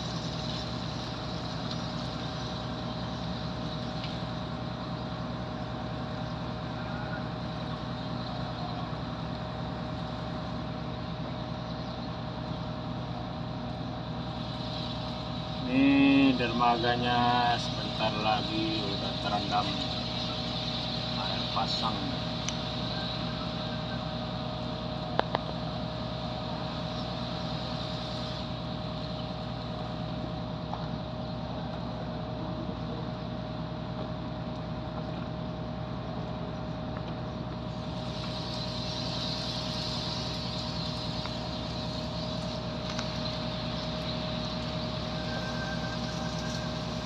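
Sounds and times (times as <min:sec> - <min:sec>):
hiss: 0:14.1 - 0:31.0, 0:37.6 - 0:47.0.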